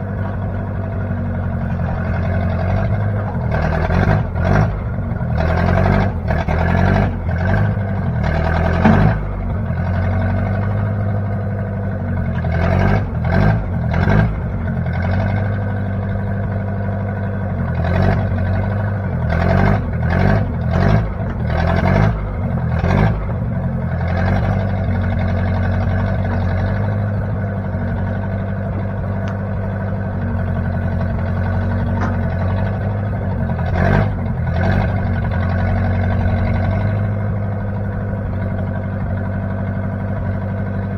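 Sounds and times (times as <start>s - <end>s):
backhoe engine running: 0.0s - 40.9s
short clanks and rattles: 8.5s - 9.3s, 31.0s - 33.8s.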